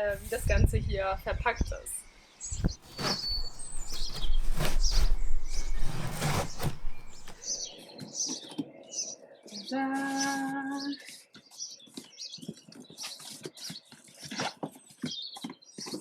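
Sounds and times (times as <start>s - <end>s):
cardboard package rustling: 2.6s - 7.7s.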